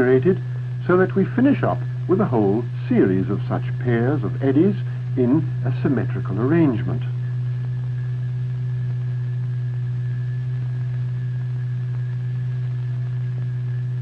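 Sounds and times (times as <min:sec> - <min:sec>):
low electronic tone: 0:00.0 - 0:14.0
thin high whine: 0:00.0 - 0:14.0.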